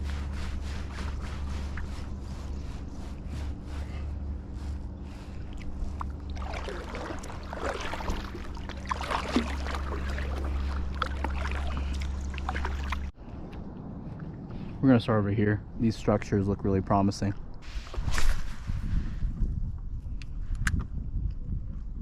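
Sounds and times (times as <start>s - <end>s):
kayak paddle strokes: 0.0s - 13.1s
steady low hum: 0.0s - 18.0s
water splashing against hull: 5.1s - 13.2s.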